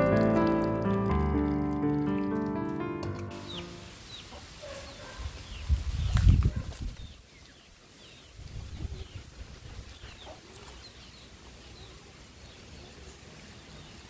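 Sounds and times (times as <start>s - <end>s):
small birds chirping: 3.3s - 14.0s.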